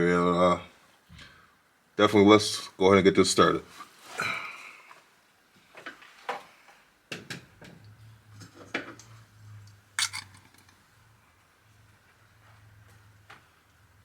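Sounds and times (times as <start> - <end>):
metallic tool clicks and knocks: 10.0 - 10.8.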